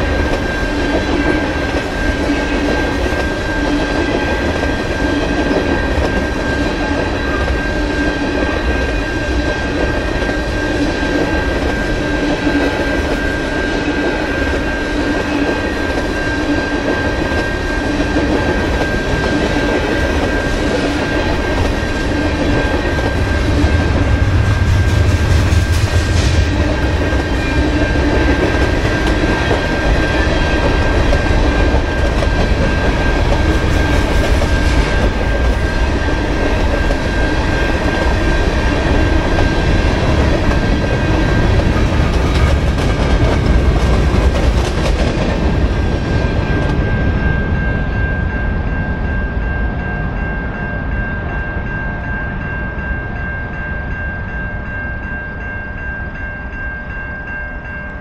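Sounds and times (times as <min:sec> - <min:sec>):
sustained high tone: 0:00.0 - 0:42.4
train rumbling past: 0:00.0 - 0:58.0.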